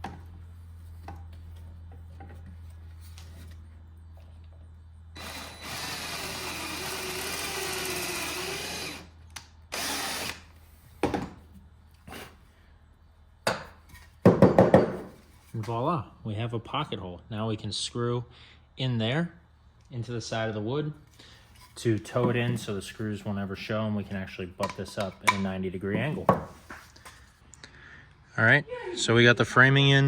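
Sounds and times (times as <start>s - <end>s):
power drill boring into wood: 5.2s - 9.1s, 9.7s - 10.5s.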